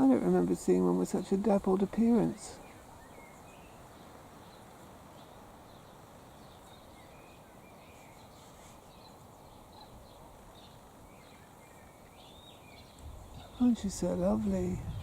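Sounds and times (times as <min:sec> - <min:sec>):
faint bird calls and chirps: 0:00.2 - 0:15.0
wind rush: 0:13.0 - 0:15.0.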